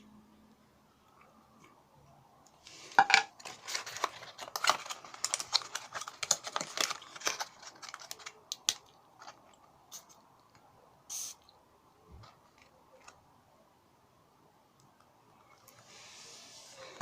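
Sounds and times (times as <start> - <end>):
packaging rustling: 2.9 - 9.6
short hiss: 11.1 - 11.4.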